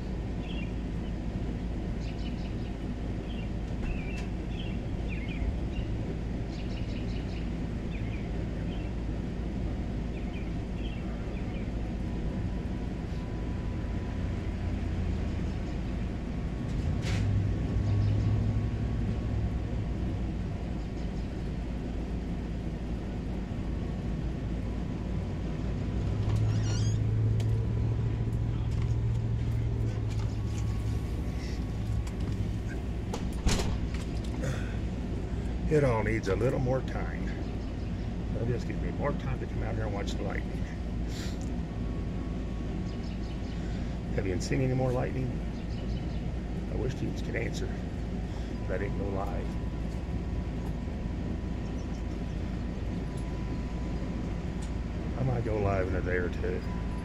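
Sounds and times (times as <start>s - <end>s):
birds chirping: 0.1s - 16.5s, 17.6s - 57.0s
low rumble: 9.6s - 39.0s.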